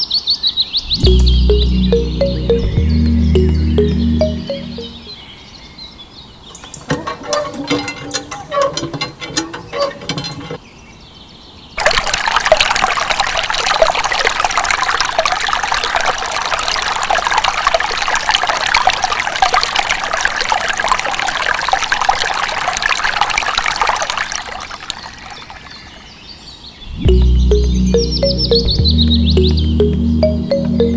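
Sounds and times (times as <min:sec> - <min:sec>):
water pouring and splashing: 0:06.5 - 0:10.6, 0:11.8 - 0:26.2.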